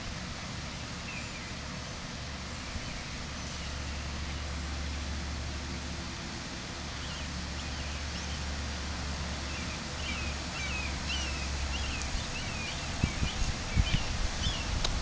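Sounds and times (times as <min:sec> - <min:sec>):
low wind rumble: 0:00.0 - 0:15.0
outdoor hiss: 0:00.0 - 0:15.0
small birds chirping: 0:00.6 - 0:01.6, 0:06.9 - 0:08.6, 0:09.3 - 0:14.9.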